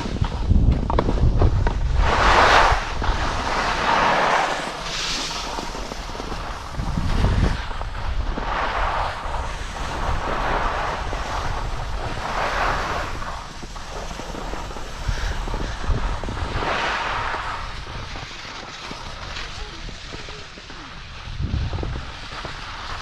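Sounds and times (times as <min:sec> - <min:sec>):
skis scraping over snow: 0:00.0 - 0:23.0
wind rumbling on microphone: 0:00.0 - 0:23.0.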